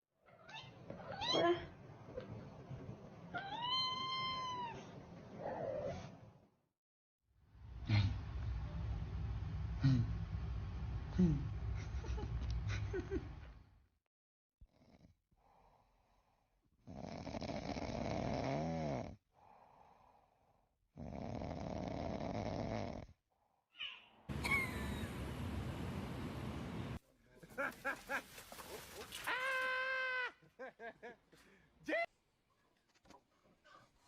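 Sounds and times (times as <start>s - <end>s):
person snoring: 16.8s - 19.2s, 21.0s - 23.2s.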